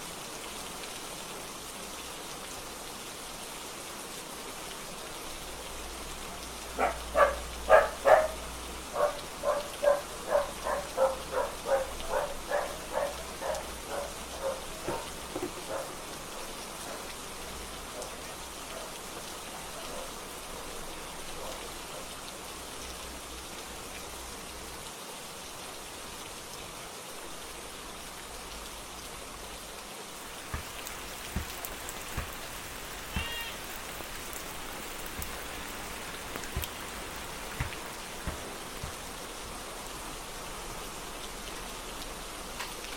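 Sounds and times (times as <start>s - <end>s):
steady rain falling: 0.0s - 42.9s
animal short calls: 33.1s - 33.7s.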